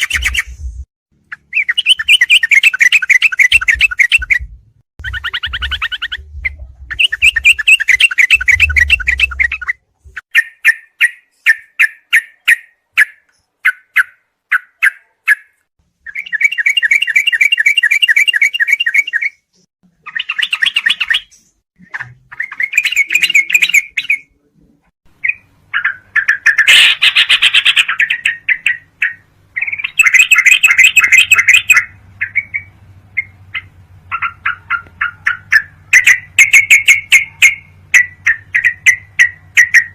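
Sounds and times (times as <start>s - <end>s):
bulbul chattering song: 0.0s - 24.4s, 25.1s - 39.9s
faint low hum: 3.7s - 7.7s, 8.3s - 10.2s.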